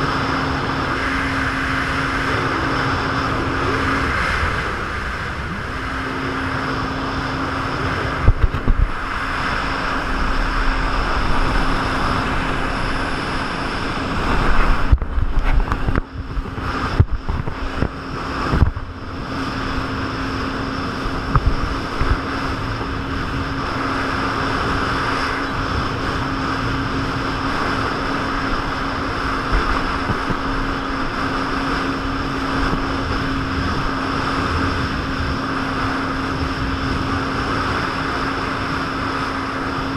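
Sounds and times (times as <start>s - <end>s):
jet ski engine running: 0.0s - 39.9s
rushing water: 0.0s - 39.9s
wind on microphone: 0.0s - 39.9s
hull knocking and splashing: 14.2s - 18.8s.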